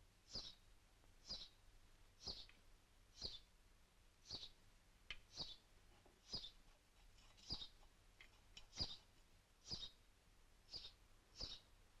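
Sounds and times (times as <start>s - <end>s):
baby bird peeping: 0.3s - 0.6s, 1.2s - 1.6s, 2.2s - 2.5s, 3.1s - 3.5s, 4.2s - 4.6s, 5.2s - 6.6s, 7.2s - 7.8s, 8.6s - 10.0s, 10.7s - 11.7s.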